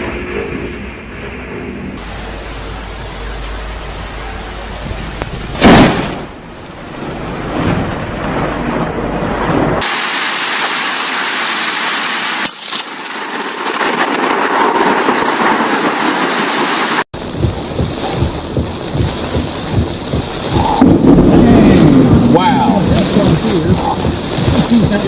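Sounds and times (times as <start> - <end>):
low rumbling thunder: 0.0 - 9.8, 17.2 - 25.0
heavy rain: 2.0 - 25.0.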